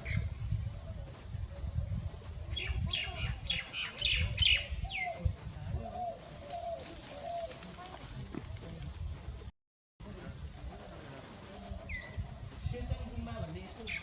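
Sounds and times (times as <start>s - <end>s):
faint high chatter: 2.5s - 8.8s.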